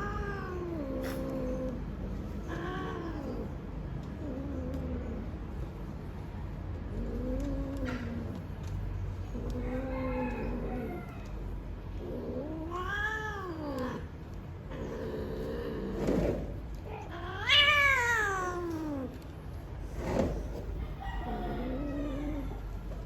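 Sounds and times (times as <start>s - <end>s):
cats yowling: 0.0s - 3.6s, 9.3s - 14.1s, 16.8s - 19.2s, 20.8s - 22.9s.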